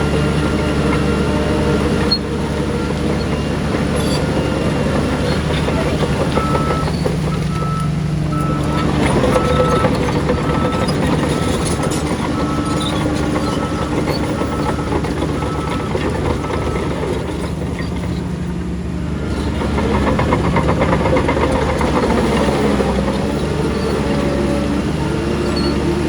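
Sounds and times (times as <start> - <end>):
heavy diesel machinery running: 0.0 - 26.0
reversing alarm beeping: 2.1 - 17.3.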